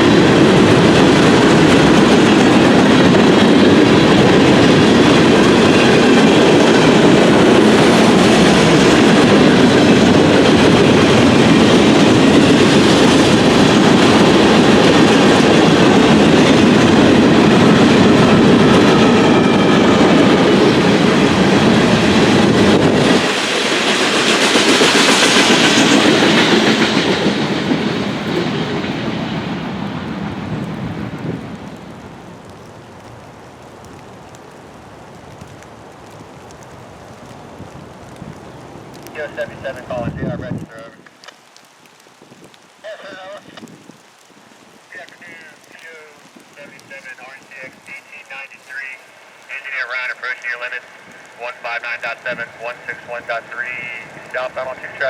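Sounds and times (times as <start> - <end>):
train wheels clacking over rail joints: 0.0 - 29.0
train rumble and rattle: 0.0 - 34.0, 46.5 - 55.0.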